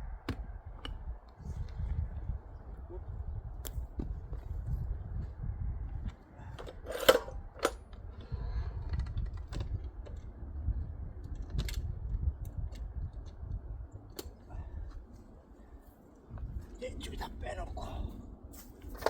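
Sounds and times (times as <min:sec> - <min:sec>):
low handling rumble: 0:00.0 - 0:06.6, 0:07.3 - 0:18.8
metal parts clinking: 0:06.6 - 0:07.8.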